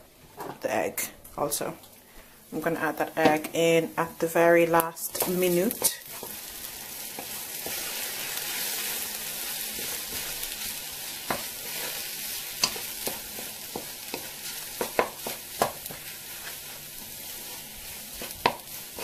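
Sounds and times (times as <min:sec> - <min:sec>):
rice sizzling in a wok: 0:02.4 - 0:19.0
wooden spoon knocking and scraping pan: 0:03.2 - 0:03.6, 0:05.1 - 0:06.4, 0:07.1 - 0:07.9, 0:11.2 - 0:19.0.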